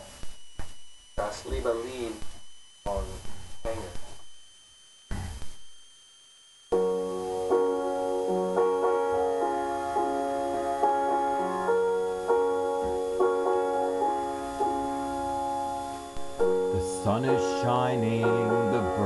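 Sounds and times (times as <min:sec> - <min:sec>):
keyboard chords: 0:06.7 - 0:19.0.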